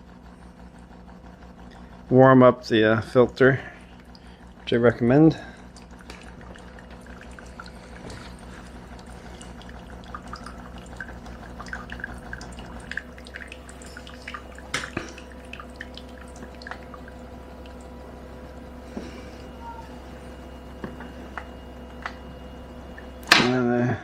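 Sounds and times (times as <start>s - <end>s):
espresso machine hum: 0.0s - 24.0s
water trickling and dripping: 5.7s - 18.7s.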